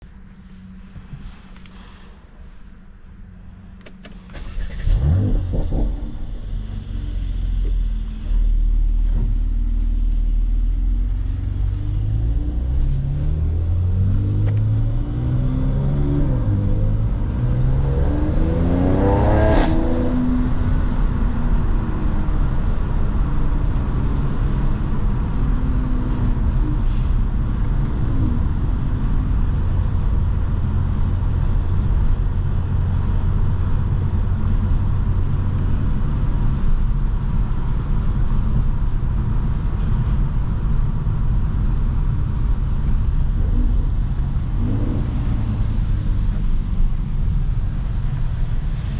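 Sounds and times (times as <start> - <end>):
exhaust crack: 3.8 - 7.9
car engine accelerating: 3.8 - 48.9.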